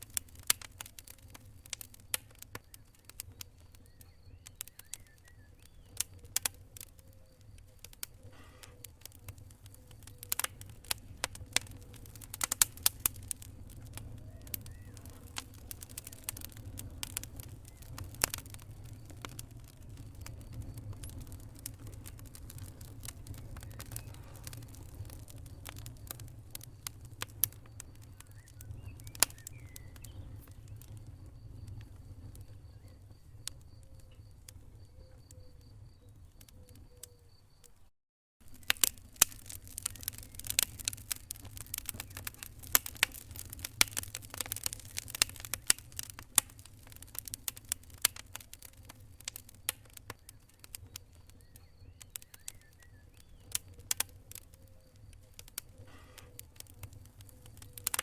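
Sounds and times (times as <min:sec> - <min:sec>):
wood fire crackling: 0:00.0 - 0:37.8, 0:38.4 - 0:58.0.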